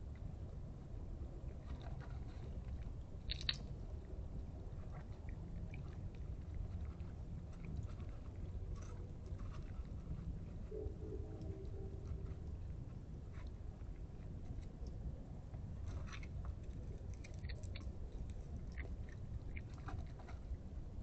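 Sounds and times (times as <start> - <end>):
animal chewing and crunching food: 0.0 - 21.0
steady low hum: 0.0 - 21.0
small clicks: 3.3 - 3.7.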